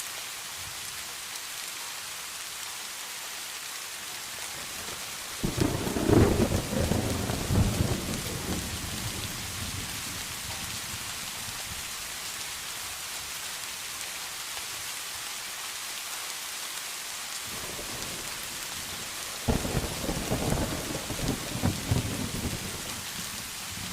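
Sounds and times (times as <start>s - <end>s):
steady rain falling: 0.0s - 23.9s
thunder rolling: 5.4s - 9.8s, 19.5s - 22.9s.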